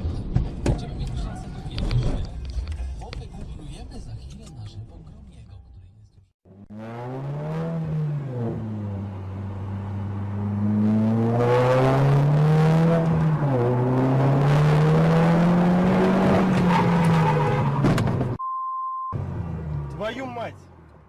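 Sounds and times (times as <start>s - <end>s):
car engine revving: 6.5s - 18.4s
steady high beep: 18.4s - 19.2s.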